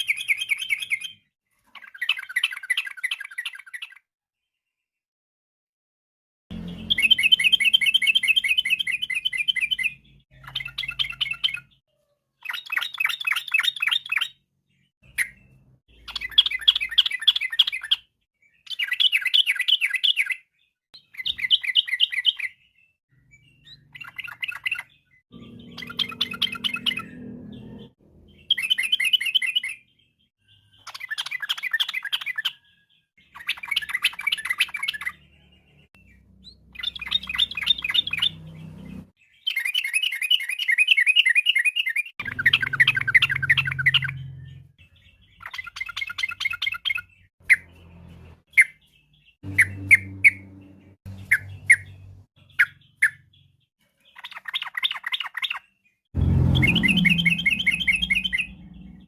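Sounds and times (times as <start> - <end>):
bulbul chattering song: 6.5 - 11.8, 21.0 - 32.6, 33.2 - 55.6, 56.2 - 59.0
short bird call notes: 56.2 - 59.0.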